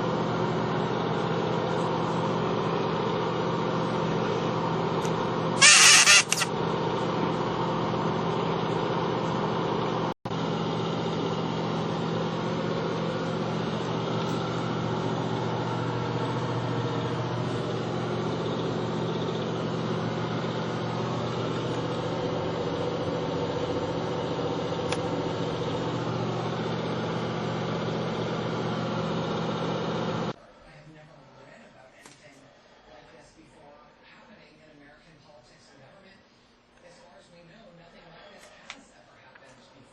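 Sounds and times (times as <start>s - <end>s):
machine hum: 5.6s - 6.5s.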